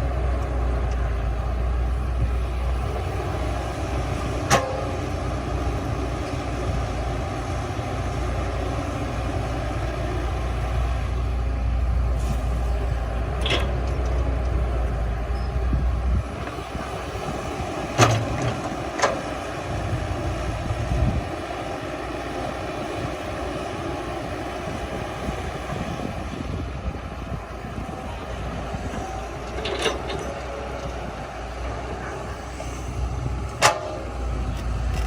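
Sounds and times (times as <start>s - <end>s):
heavy diesel machinery rumbling: 0.0s - 35.0s.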